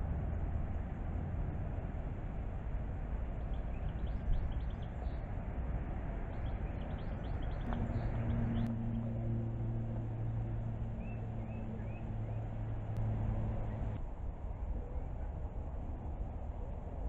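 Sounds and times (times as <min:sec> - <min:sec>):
low outdoor rumble: 0:00.0 - 0:17.0
low steady hum: 0:00.0 - 0:17.0
small birds chirping: 0:03.4 - 0:05.3, 0:06.3 - 0:08.7.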